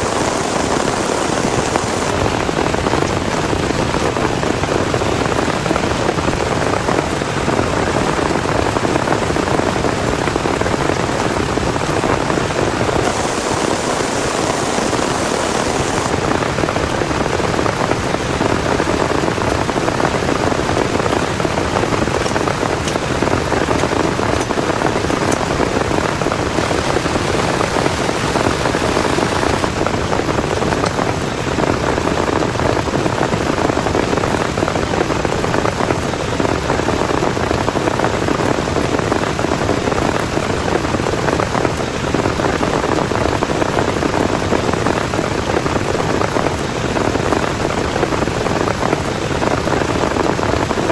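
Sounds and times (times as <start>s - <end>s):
heavy rain falling: 0.0s - 50.9s.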